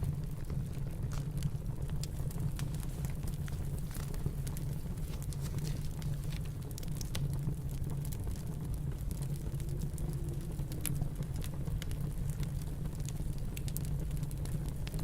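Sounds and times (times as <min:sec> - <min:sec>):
wood fire crackling: 0:00.0 - 0:15.0
low rumble: 0:08.6 - 0:12.4.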